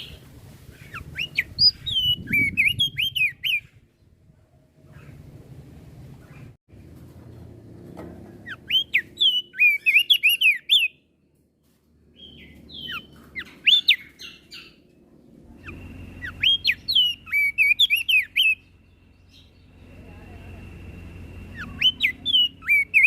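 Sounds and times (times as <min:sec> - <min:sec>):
bird chirping: 0:00.0 - 0:04.2, 0:08.4 - 0:11.3, 0:12.1 - 0:23.0.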